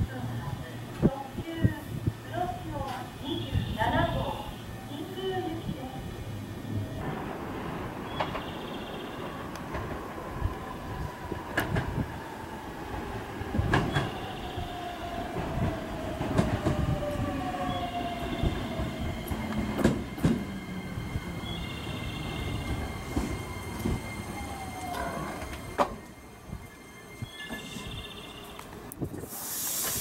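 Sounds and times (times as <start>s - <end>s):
train rolling rumble: 0.0s - 30.0s
electric train motor whine: 16.8s - 28.8s
high brake squeal: 26.2s - 28.6s.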